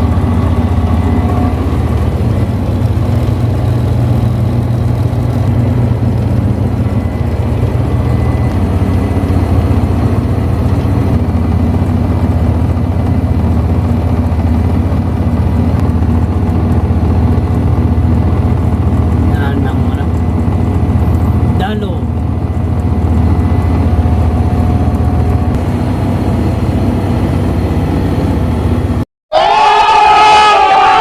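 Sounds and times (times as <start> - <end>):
faint high engine whine: 0.0 - 29.0
jet engines rumbling: 0.0 - 31.0.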